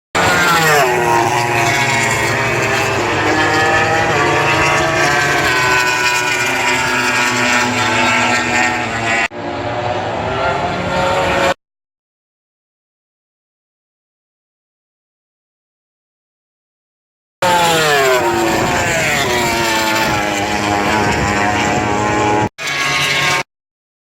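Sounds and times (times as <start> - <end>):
racing motorcycles passing: 0.2 - 11.6, 17.4 - 23.4.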